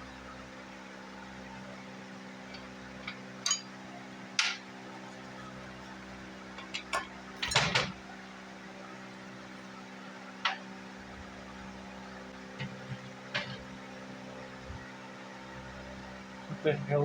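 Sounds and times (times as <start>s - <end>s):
steady low hum: 0.0s - 17.0s
tools clinking on engine parts: 2.5s - 3.7s, 6.6s - 7.9s.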